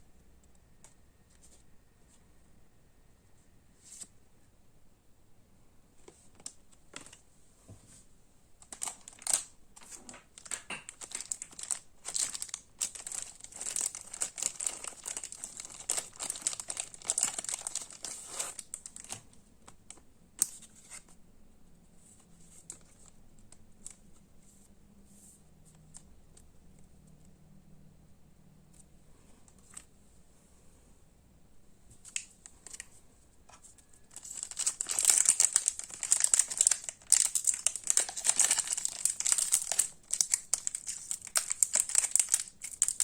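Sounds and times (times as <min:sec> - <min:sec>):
plastic wrapping crinkling: 0:08.6 - 0:19.2, 0:33.8 - 0:43.0.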